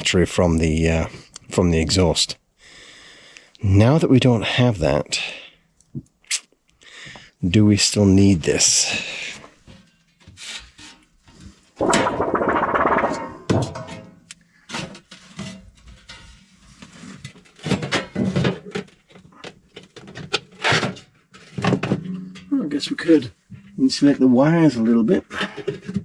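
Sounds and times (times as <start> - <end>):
scraping rattle: 11.8 - 16.5.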